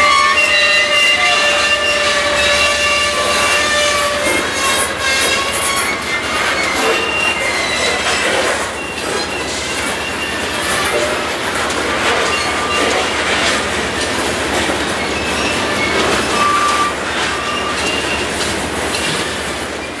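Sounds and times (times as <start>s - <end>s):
high wheel squeals: 0.0s - 20.0s
train cars rolling on steel wheels: 0.0s - 20.0s.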